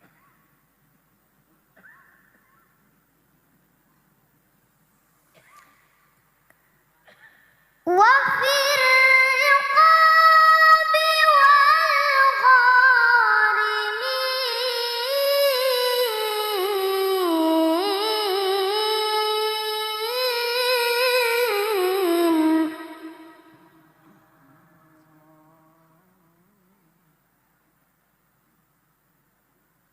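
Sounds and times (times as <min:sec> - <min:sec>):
child reciting in melodic style: 0:07.8 - 0:23.8.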